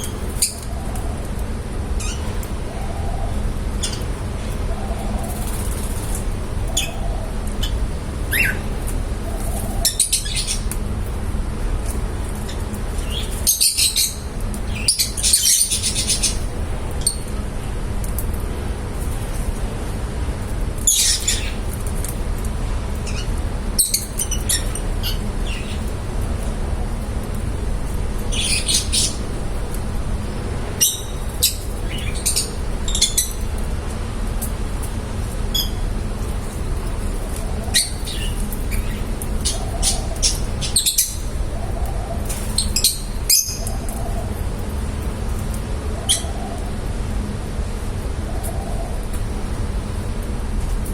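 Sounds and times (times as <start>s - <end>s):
birds chirping: 0.0s - 11.2s, 11.8s - 17.7s, 20.8s - 22.0s, 22.8s - 46.9s
low background rumble: 0.0s - 50.9s.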